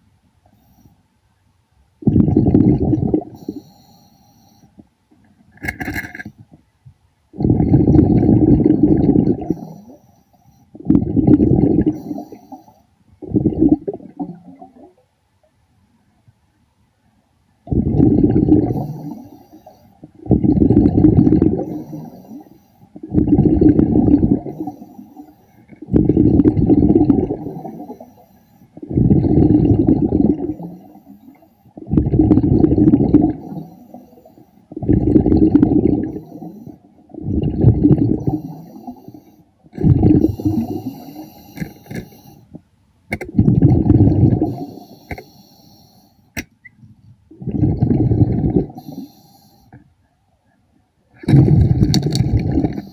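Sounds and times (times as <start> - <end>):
underwater bubbles gushing: 2.0 - 3.6, 7.4 - 10.0, 10.8 - 12.4, 13.2 - 15.0, 17.7 - 19.3, 20.0 - 28.2, 28.8 - 42.2, 43.2 - 45.0, 47.3 - 49.1, 51.2 - 52.9.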